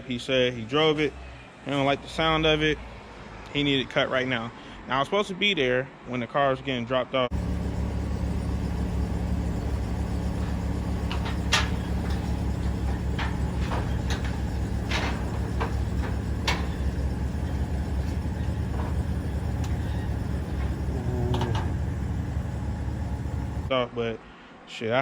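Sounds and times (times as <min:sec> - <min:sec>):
vehicle droning inside cabin: 0:07.3 - 0:23.7
light clicks and knocks: 0:07.4 - 0:23.7.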